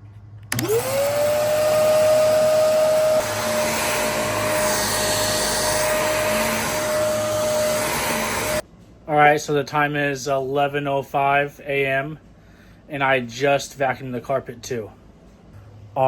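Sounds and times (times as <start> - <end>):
vacuum cleaner motor whine: 0.4 - 8.6
vacuum suction rushing: 0.5 - 8.6.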